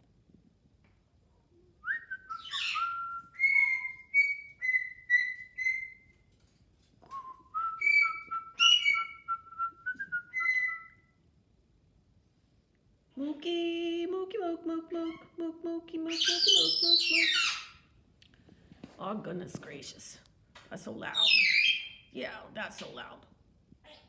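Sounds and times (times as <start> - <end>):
parrot whistling: 1.9 - 6.0, 7.6 - 11.1, 16.1 - 17.8.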